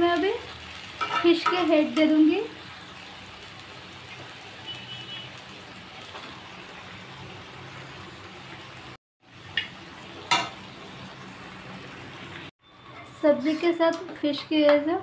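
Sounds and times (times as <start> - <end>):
vegetables sizzling in a pan: 0.0 - 15.0
metal spatula clinking on pan: 1.0 - 2.1.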